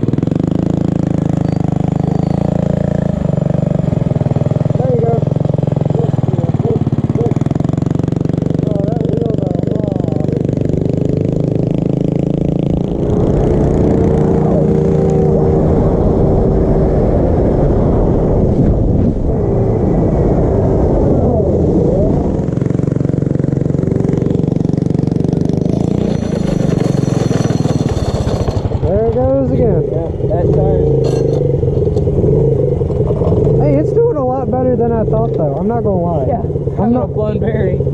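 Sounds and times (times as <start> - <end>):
mini bike engines running: 0.0 - 14.8, 22.6 - 32.1.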